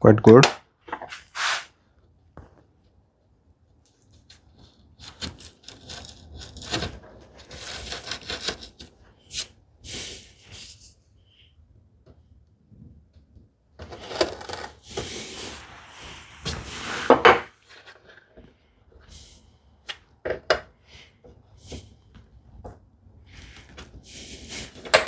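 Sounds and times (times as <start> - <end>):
hinge scraping on wood: 0.9 - 1.7.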